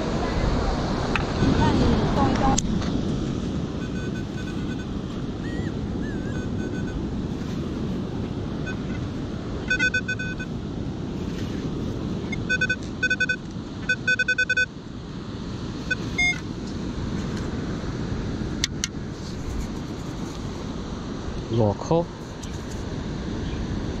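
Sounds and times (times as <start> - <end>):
wind: 0.0 - 24.0
metal detector beeping: 3.8 - 4.9, 6.1 - 7.0, 8.6 - 8.9, 9.6 - 10.5, 12.3 - 14.7, 15.8 - 16.4.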